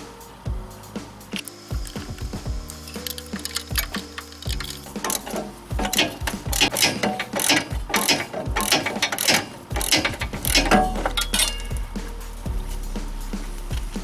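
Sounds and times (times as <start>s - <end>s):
ratchet wrench clicking: 1.3s - 11.9s.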